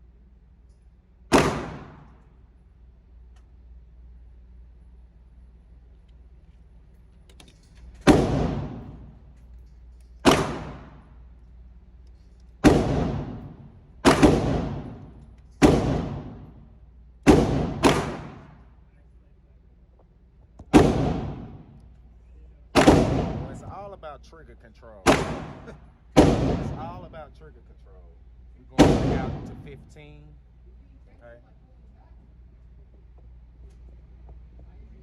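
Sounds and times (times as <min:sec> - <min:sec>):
pistol shots: 0:01.3 - 0:02.3, 0:08.0 - 0:09.2, 0:10.2 - 0:11.2, 0:12.6 - 0:18.8, 0:20.7 - 0:21.8, 0:22.8 - 0:23.7, 0:25.0 - 0:27.2, 0:28.8 - 0:29.9.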